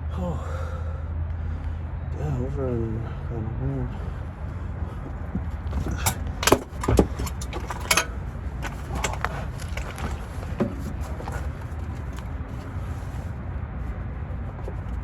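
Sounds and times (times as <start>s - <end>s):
tools clanking against metal: 5.4s - 12.6s.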